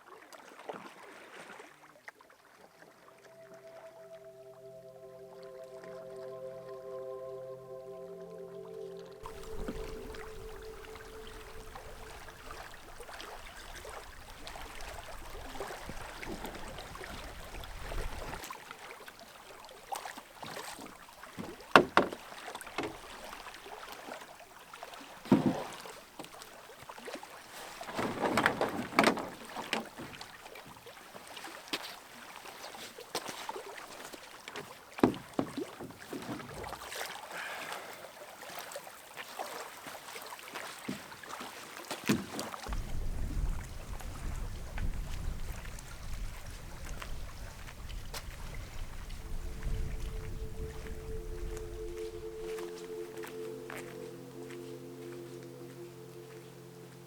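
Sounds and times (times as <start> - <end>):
canoe paddle strokes splashing: 9.2 - 57.0
sharp knocks: 21.8 - 22.2.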